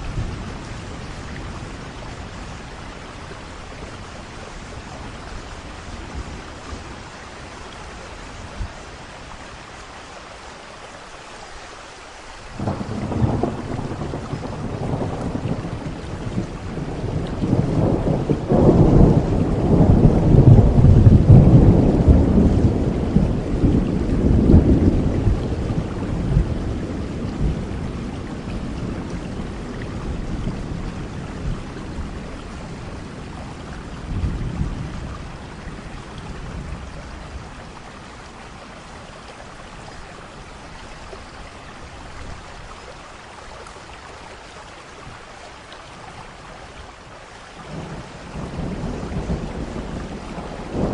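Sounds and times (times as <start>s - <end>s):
steady rain: 0.0s - 50.9s
thunder rumbling: 12.6s - 39.5s, 47.6s - 50.9s.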